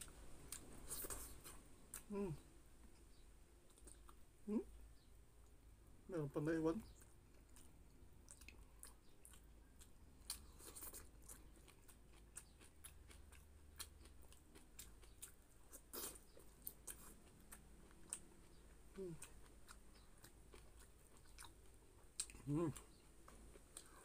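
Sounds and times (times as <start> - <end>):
chewing clicks and wet smacks: 2.8 - 4.2, 6.8 - 24.0.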